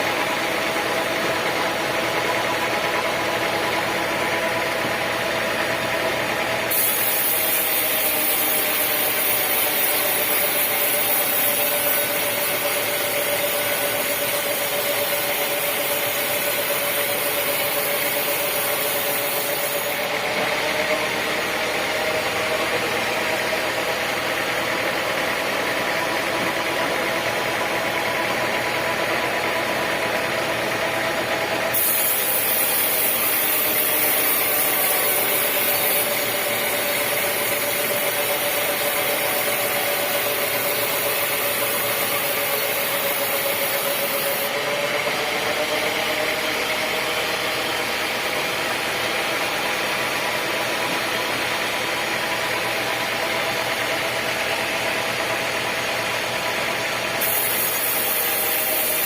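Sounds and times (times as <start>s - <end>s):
sawmill machinery droning: 0.0s - 59.0s
high hiss: 31.8s - 44.5s, 57.2s - 59.0s.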